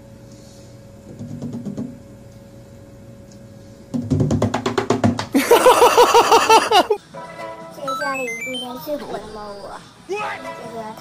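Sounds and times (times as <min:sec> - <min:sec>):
fast clattering drum beat: 0:04.0 - 0:05.4
warbling bouncing melody: 0:07.9 - 0:09.8.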